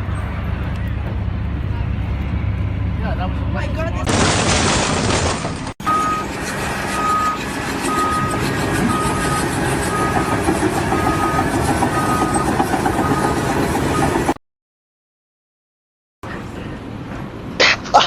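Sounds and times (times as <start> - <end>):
engine running: 0.0 - 14.4
reversing alarm beeping: 5.8 - 14.4.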